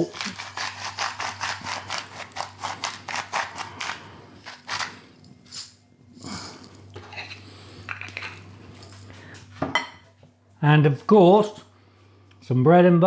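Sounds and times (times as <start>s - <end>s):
salt grinder grinding: 0.0s - 6.8s.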